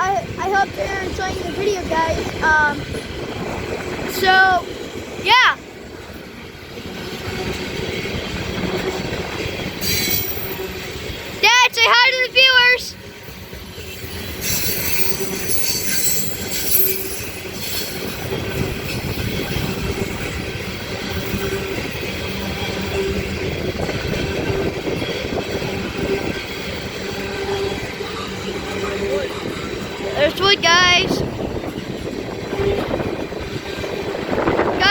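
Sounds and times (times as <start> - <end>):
freight train rumbling: 0.0 - 34.9
steel wheels squealing: 7.0 - 11.3, 13.3 - 34.7.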